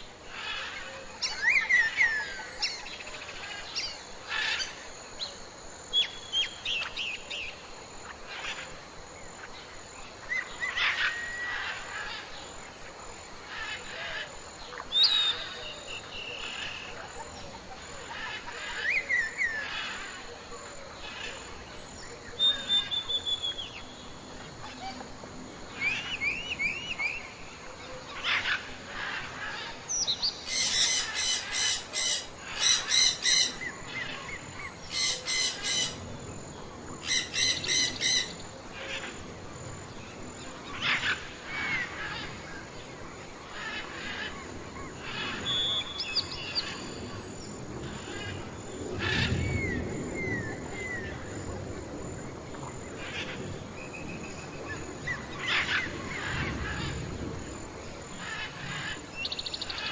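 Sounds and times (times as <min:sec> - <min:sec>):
birds chirping and singing: 0:28.2 - 0:36.1.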